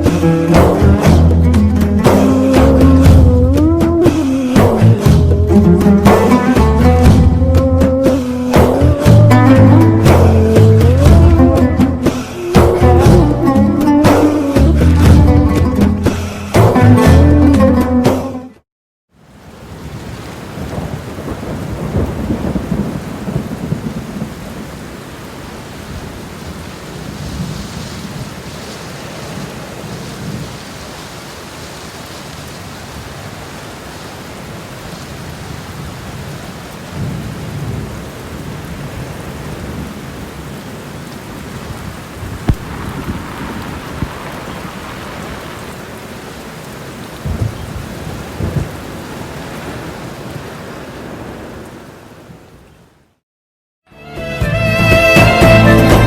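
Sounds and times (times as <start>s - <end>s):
thunder rumbling: 0.0s - 17.4s, 19.5s - 30.9s, 35.3s - 52.2s
steady rain: 0.0s - 17.8s, 19.1s - 53.2s
sharp thunder cracks: 20.6s - 24.6s, 42.4s - 45.8s, 47.2s - 48.9s.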